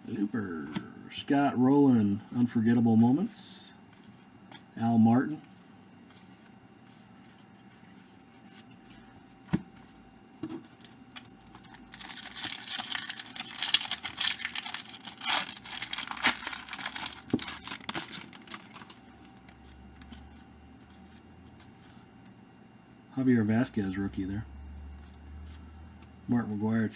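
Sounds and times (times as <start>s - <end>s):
card wrapper crinkling and tearing: 10.8s - 19.6s.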